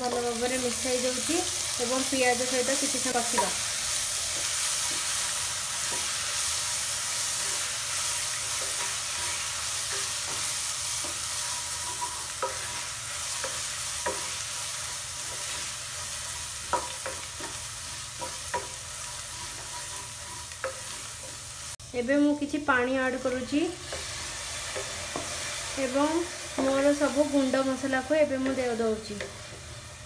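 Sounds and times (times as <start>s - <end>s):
onions sizzling in oil: 0.0s - 30.0s
spatula scraping and knocking pan: 7.3s - 21.5s, 23.2s - 25.7s.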